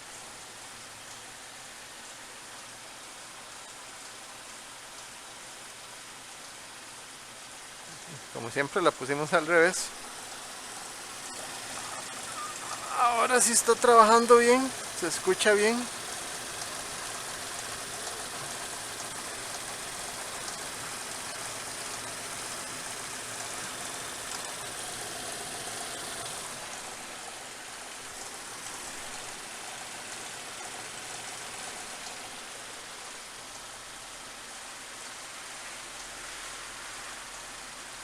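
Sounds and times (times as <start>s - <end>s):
car engine idling: 7.9s - 33.7s.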